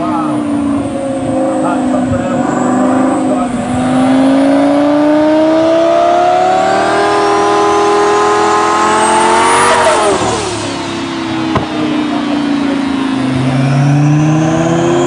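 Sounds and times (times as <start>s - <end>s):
car engine revving on dyno: 0.0s - 15.0s
sharp crack: 11.5s - 12.1s.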